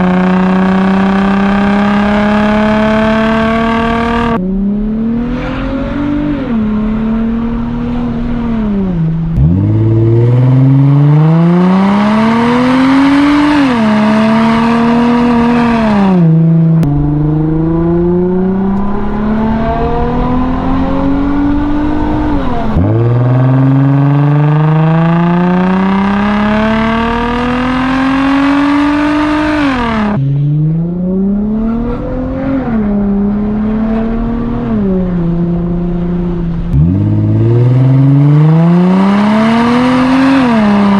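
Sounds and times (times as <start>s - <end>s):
car engine accelerating through gears: 0.0s - 40.9s.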